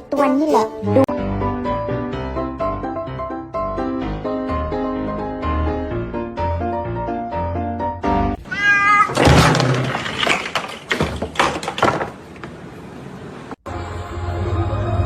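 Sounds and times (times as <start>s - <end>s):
piano music: 0.0s - 8.4s
cat meowing: 8.4s - 9.2s.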